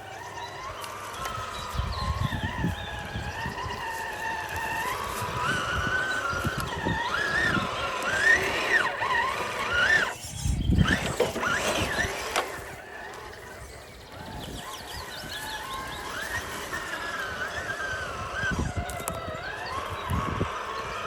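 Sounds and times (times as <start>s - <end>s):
electric motor and gear whine: 0.0s - 21.0s.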